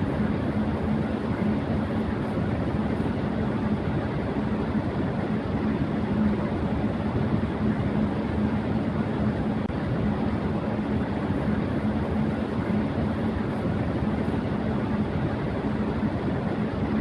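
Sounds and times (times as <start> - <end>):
electric fan air rushing: 0.0 - 17.0
fan motor hum: 0.0 - 17.0.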